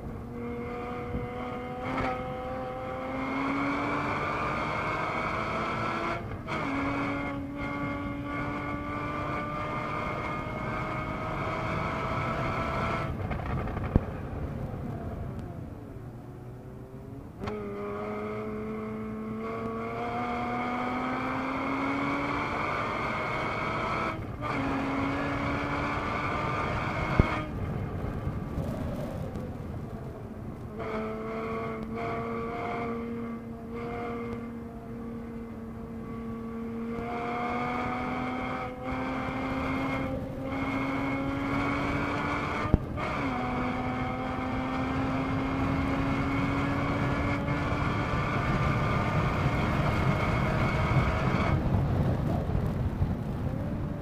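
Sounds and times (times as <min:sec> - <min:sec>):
car engine accelerating hard: 0:00.0 - 0:14.0, 0:16.4 - 0:54.0.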